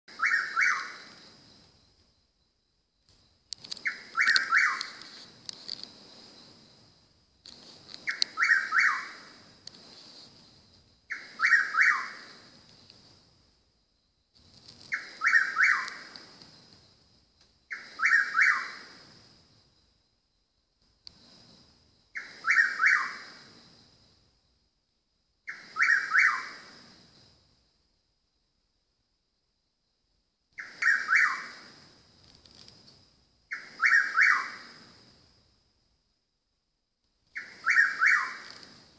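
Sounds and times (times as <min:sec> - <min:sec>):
bird calling harsh notes: 0:00.1 - 0:01.0, 0:03.8 - 0:05.0, 0:08.1 - 0:09.2, 0:11.1 - 0:12.2, 0:14.9 - 0:16.0, 0:17.7 - 0:18.8, 0:22.2 - 0:23.2, 0:25.5 - 0:26.6, 0:30.6 - 0:31.6, 0:33.5 - 0:34.6, 0:37.4 - 0:38.5
steady high-pitched whine: 0:00.1 - 0:38.9.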